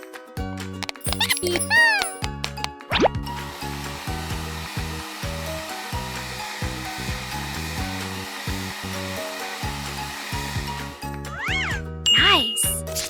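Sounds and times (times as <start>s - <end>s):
upbeat background music: 0.0s - 13.0s
hair dryer blowing: 3.2s - 11.2s.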